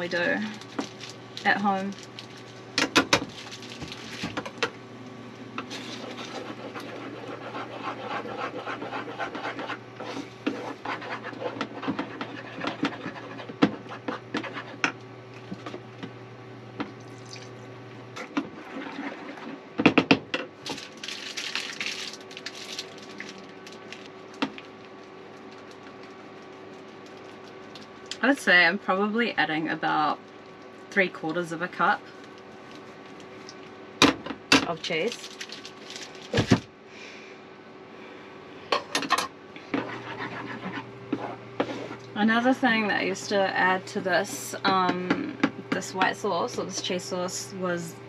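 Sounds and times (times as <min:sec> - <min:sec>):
low hum: 0:00.0 - 0:18.6
sauce being stirred in a pan: 0:05.6 - 0:15.8, 0:39.7 - 0:42.1.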